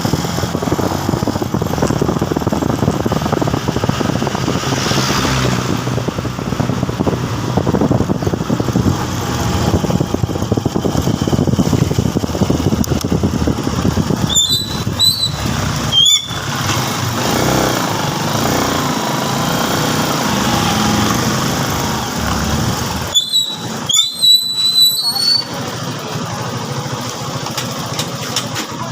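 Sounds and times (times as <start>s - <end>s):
motorcycle engine and road noise: 0.0s - 28.9s
short high squeaks: 14.3s - 16.5s, 23.0s - 25.6s.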